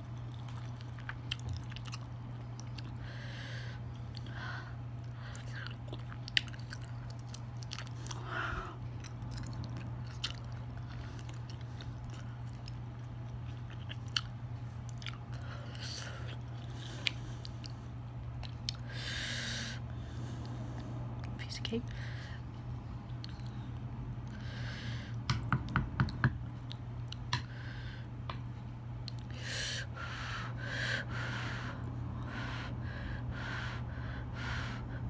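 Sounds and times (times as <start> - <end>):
person chewing rice cakes: 0.0 - 19.0, 23.0 - 24.5, 29.0 - 29.4
steady low hum: 0.0 - 35.0.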